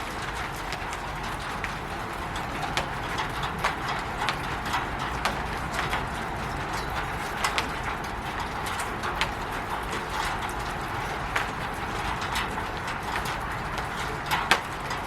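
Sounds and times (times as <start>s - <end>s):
raindrops tapping on a roof: 0.0s - 15.0s.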